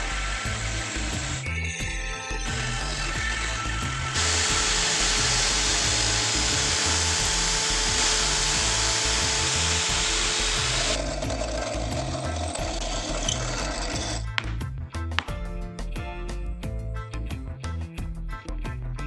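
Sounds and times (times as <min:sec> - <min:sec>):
electric power tool running: 0:00.0 - 0:01.5, 0:02.4 - 0:14.3.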